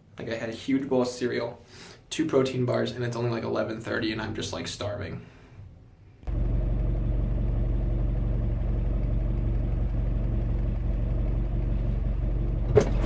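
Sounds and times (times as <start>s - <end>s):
car engine and road noise: 6.3s - 13.0s.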